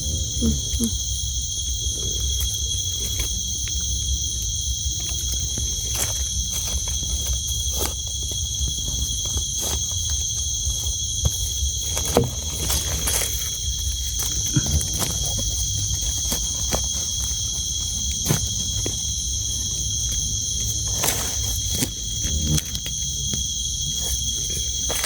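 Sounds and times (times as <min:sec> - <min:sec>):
crickets trilling: 0:00.0 - 0:25.0.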